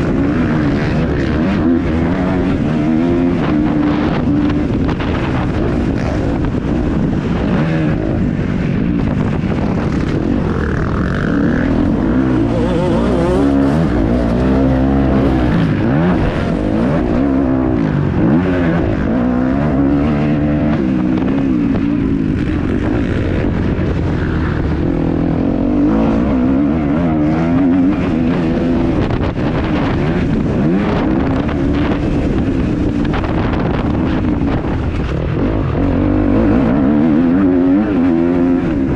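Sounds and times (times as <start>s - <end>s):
motocross engine revving: 0.0s - 38.9s.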